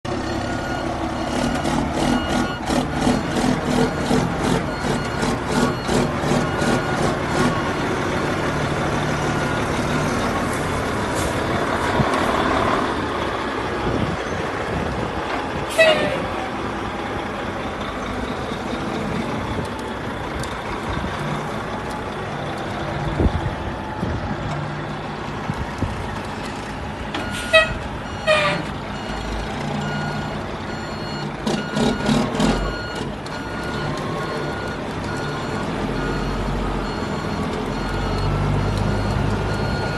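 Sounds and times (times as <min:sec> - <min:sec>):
diesel truck engine running: 0:00.0 - 0:39.9
reversing beeps: 0:00.3 - 0:07.8, 0:27.2 - 0:39.9.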